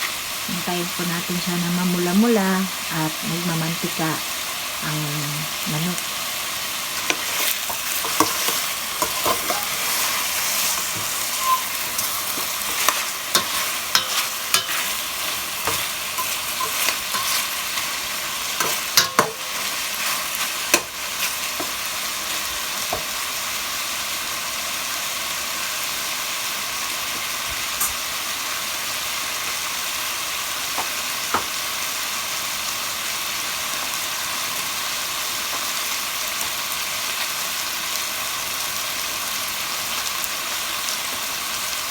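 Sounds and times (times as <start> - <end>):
chicken sizzling in oil: 0.0 - 41.9
utensil stirring against pot: 7.0 - 23.1.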